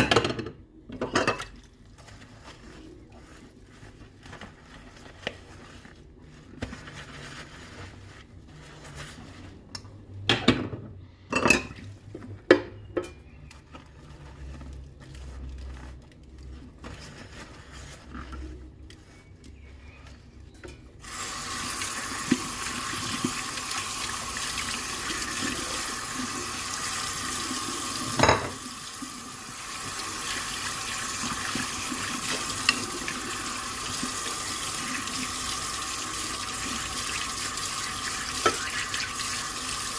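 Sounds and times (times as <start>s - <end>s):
dishes clinking in a sink: 0.0s - 1.6s, 10.4s - 11.9s, 28.1s - 28.6s
tap water running into sink: 21.0s - 39.9s
dishes clattering: 28.2s - 28.6s.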